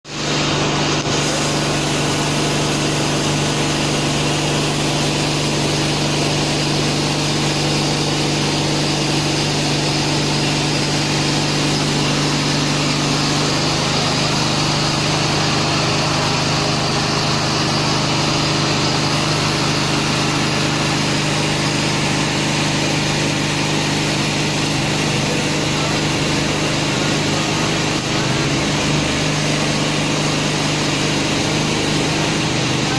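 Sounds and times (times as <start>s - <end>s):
vehicle engine hum: 0.1s - 32.9s.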